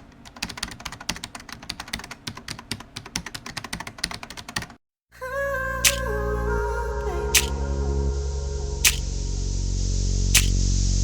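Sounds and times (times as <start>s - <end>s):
music: 5.8s - 11.0s.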